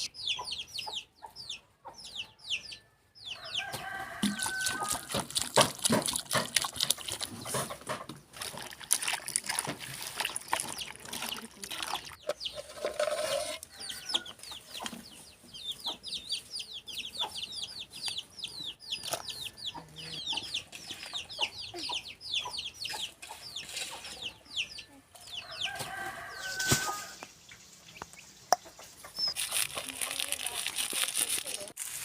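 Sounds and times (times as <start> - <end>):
bird chirping: 0.0 - 3.6, 13.7 - 25.8, 27.2 - 29.8.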